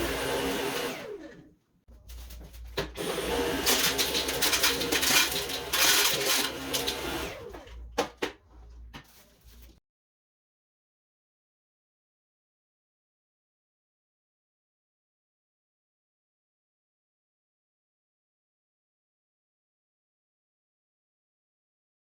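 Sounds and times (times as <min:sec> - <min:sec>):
vacuum cleaner motor whine: 0:00.0 - 0:01.4, 0:03.0 - 0:07.7.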